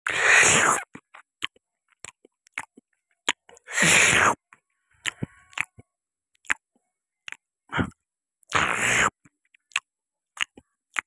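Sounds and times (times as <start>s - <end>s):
wet chewing with lip smacks: 0.7s - 3.7s, 4.3s - 7.5s, 8.5s - 11.0s.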